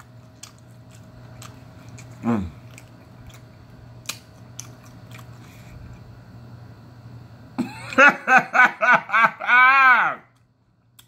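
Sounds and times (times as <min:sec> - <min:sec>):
person chewing food: 0:00.0 - 0:06.2, 0:10.3 - 0:11.0
steady low hum: 0:00.0 - 0:11.0.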